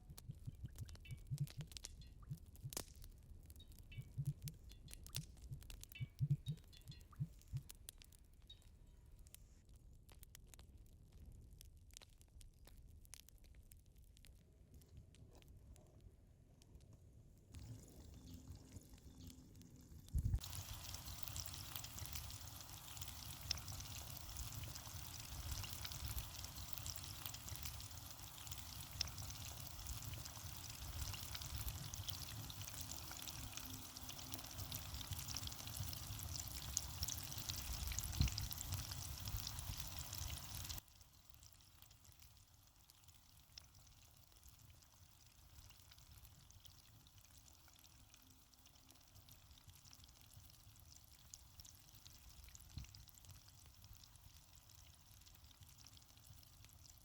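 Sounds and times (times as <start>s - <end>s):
oil sizzling while deep-frying: 20.4s - 57.0s.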